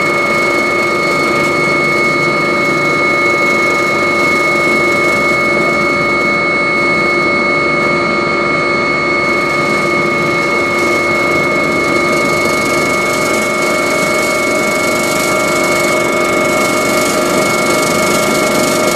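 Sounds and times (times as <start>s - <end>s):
helicopter turbine and rotor: 0.0s - 18.9s.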